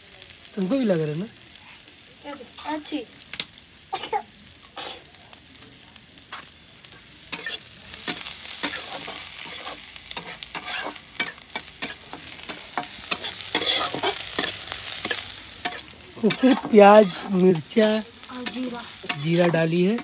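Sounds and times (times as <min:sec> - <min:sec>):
food sizzling in hot oil: 0:00.0 - 0:20.0
spatula scraping a steel pan: 0:07.3 - 0:20.0.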